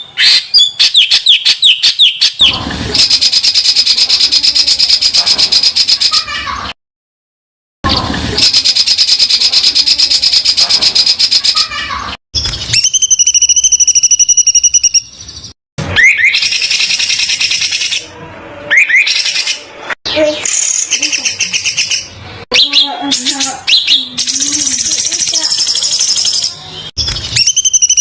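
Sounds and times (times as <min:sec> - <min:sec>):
rising bird chirps: 0:12.4 - 0:18.0.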